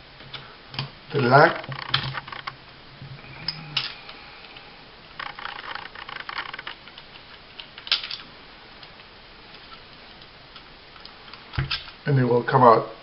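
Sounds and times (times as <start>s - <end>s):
pistol parts clicking and scraping: 5.2s - 8.3s.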